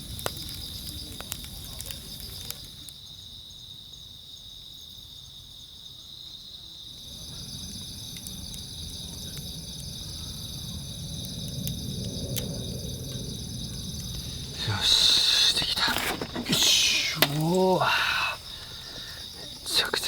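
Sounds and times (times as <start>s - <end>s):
crickets chirping: 0.0s - 20.0s
faint ticks: 7.8s - 8.6s.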